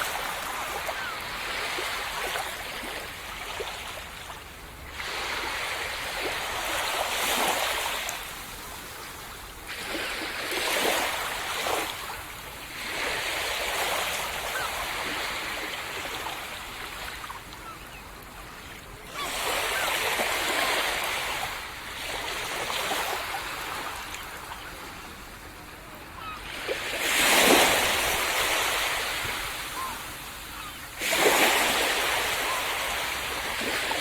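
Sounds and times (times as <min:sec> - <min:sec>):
sea waves washing on beach: 0:25.0 - 0:34.0.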